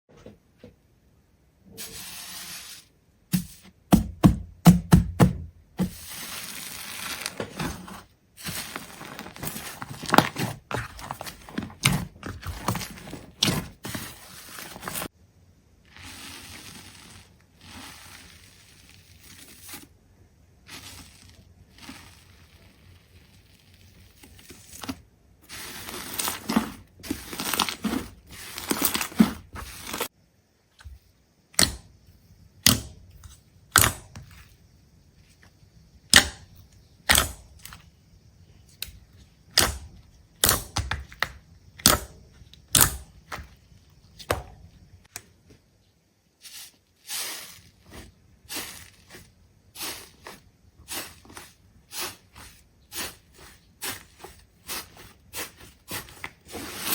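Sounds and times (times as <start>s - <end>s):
crackling and tearing handling sounds: 6.0s - 15.1s, 20.7s - 30.1s.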